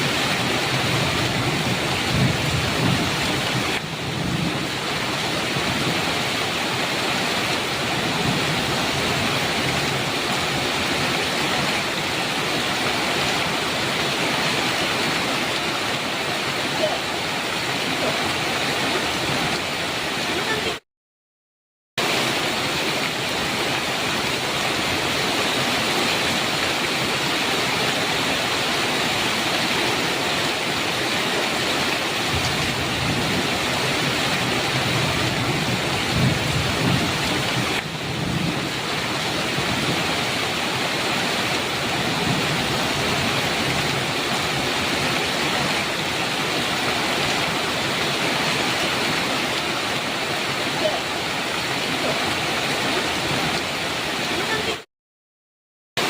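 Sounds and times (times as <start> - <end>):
thunder rumbling: 0.0 - 6.4, 32.2 - 49.2
heavy rain on metal roof: 0.0 - 20.8, 22.0 - 54.9.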